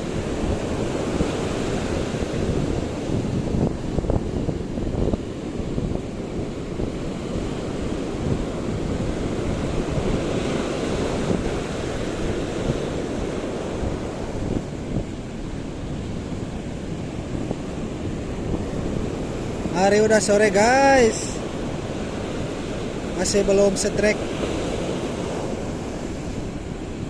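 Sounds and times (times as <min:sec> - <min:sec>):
waves washing: 0:00.0 - 0:27.0
wind rumbling on microphone: 0:00.0 - 0:27.0.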